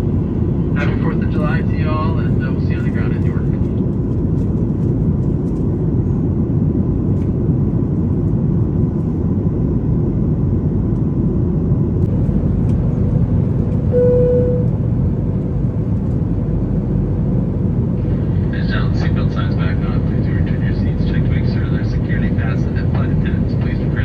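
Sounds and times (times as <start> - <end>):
short single tone: 13.9 - 14.8.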